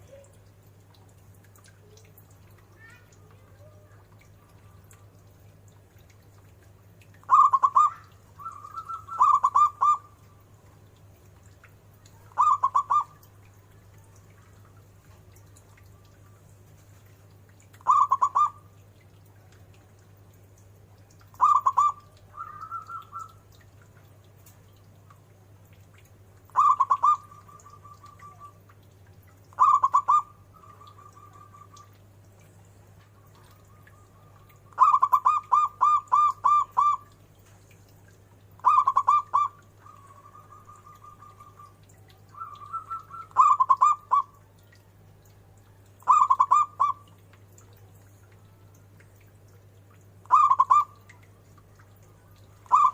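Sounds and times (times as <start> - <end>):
dove cooing: 7.3 - 10.4, 12.3 - 13.3, 17.8 - 18.6, 21.4 - 23.4, 26.5 - 28.6, 29.5 - 32.0, 33.2 - 37.2, 38.6 - 44.4, 46.0 - 47.0, 50.3 - 51.0, 52.7 - 52.9.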